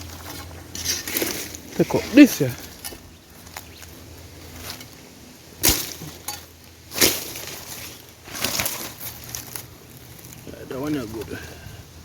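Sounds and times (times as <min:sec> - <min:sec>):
sharp chopping strikes: 0:05.6 - 0:06.2.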